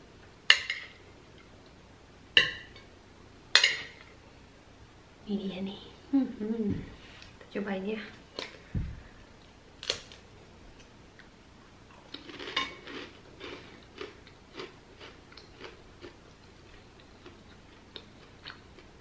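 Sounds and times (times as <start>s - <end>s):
crunching food: 11.9s - 19.0s
faint chewing crunches: 11.9s - 19.0s.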